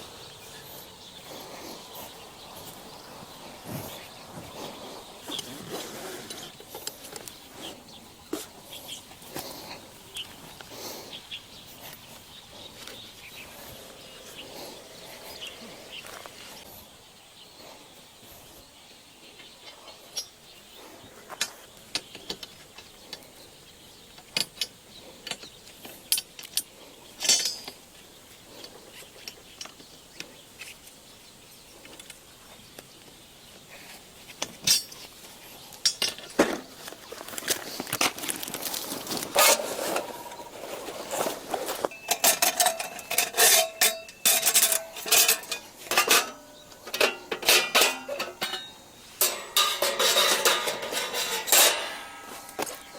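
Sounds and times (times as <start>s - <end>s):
metal parts clinking: 26.1s - 27.8s, 34.6s - 35.1s, 35.8s - 36.5s, 41.7s - 52.9s.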